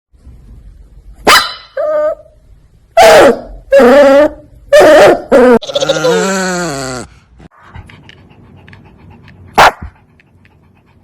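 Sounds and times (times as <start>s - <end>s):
dog whining: 3.0s - 7.1s.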